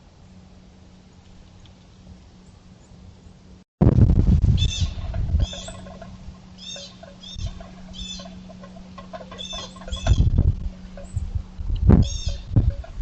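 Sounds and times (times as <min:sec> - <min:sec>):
wind rumbling on microphone: 0:03.8 - 0:13.0
bird calling: 0:04.6 - 0:11.4, 0:12.0 - 0:13.0.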